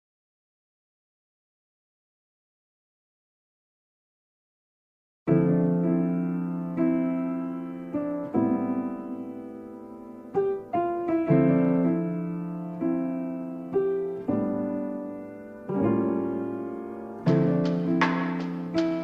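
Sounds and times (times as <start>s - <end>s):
soft piano chords: 5.3s - 19.0s.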